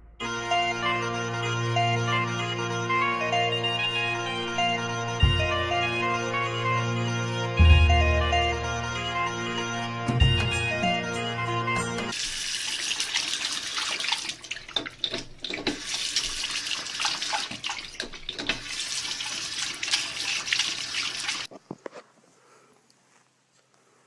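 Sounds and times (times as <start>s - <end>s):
tap running into sink: 14.0s - 16.4s, 17.0s - 18.8s.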